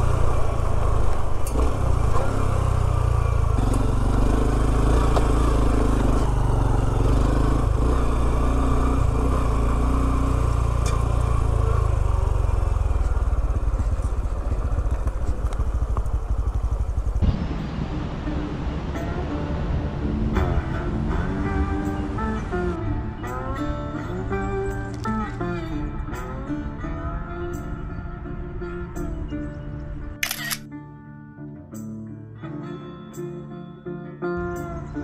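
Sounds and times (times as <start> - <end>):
motorbike engine rumbling: 0.0 - 27.8.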